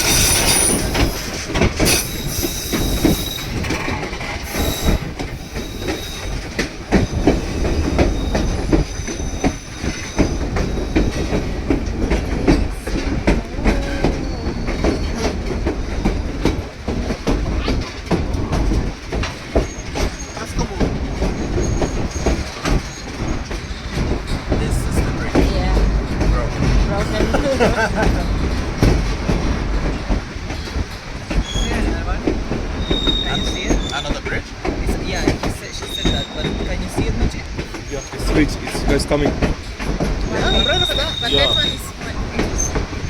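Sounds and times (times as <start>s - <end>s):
faint high wheel squeal: 0.0s - 1.3s, 1.9s - 3.6s, 4.5s - 6.4s, 7.0s - 11.2s, 19.6s - 20.5s, 31.4s - 31.9s, 32.8s - 34.4s, 35.7s - 36.9s, 40.2s - 42.8s
train wheels clacking over rail joints: 0.0s - 43.0s.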